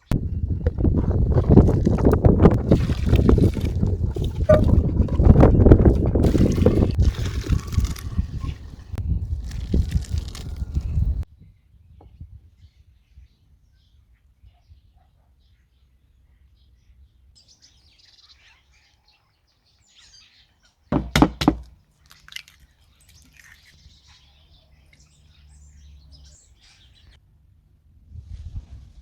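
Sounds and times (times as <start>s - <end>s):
sharp knocks: 20.9s - 21.7s
faint bird chirping: 22.0s - 27.2s.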